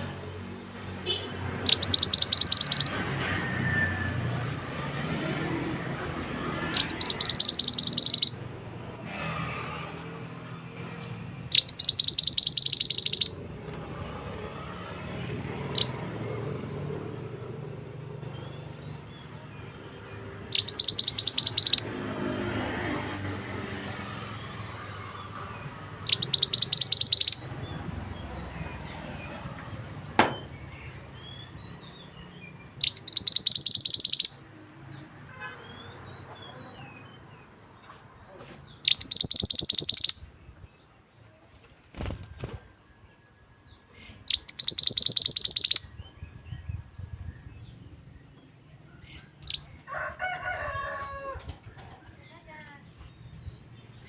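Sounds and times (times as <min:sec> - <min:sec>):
songbird rapid rolling trill: 0:01.6 - 0:03.0, 0:06.6 - 0:08.4, 0:11.5 - 0:13.4, 0:15.6 - 0:16.0, 0:20.5 - 0:21.9, 0:26.0 - 0:27.6, 0:32.8 - 0:34.4, 0:38.8 - 0:40.2, 0:44.3 - 0:45.9.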